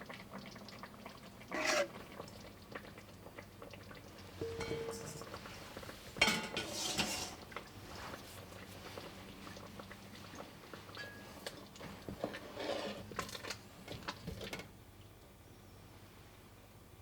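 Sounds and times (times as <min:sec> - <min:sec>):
dishes and utensils clicking: 0:04.4 - 0:05.4, 0:06.2 - 0:07.4.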